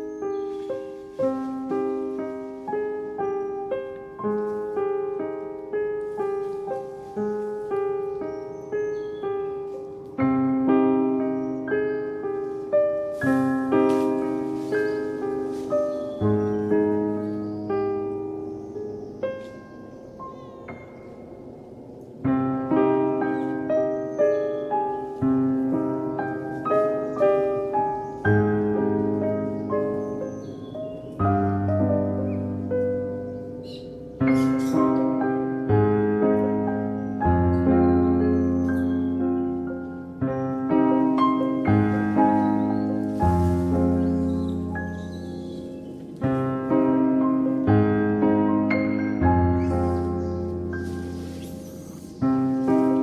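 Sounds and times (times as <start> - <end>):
gentle piano melody: 0.0 - 53.0.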